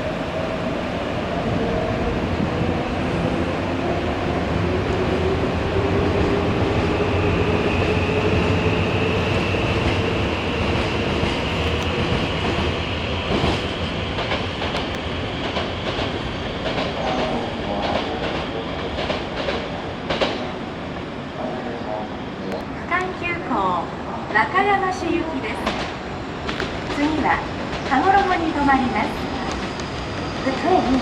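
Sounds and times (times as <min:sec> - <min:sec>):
train wheels clacking over rail joints: 0:14.2 - 0:20.6.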